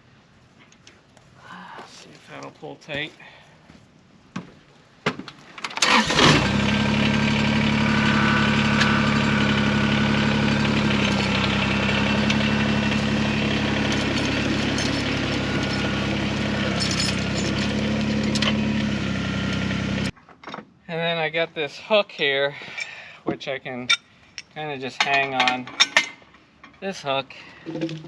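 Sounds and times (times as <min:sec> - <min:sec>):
diesel tractor engine starting and idling: 0:05.7 - 0:20.2.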